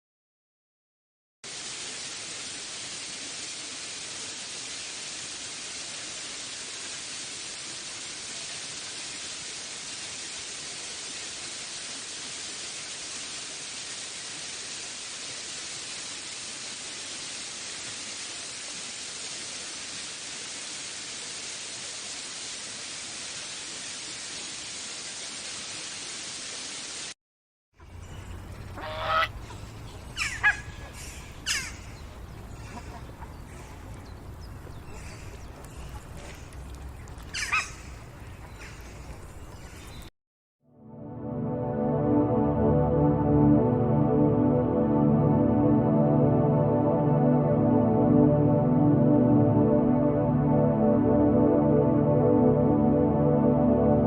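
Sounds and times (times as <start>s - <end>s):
nature ambience hiss: 1.4s - 27.2s, 27.8s - 40.1s
loud harsh bird calls: 28.2s - 33.9s, 37.3s - 39.0s.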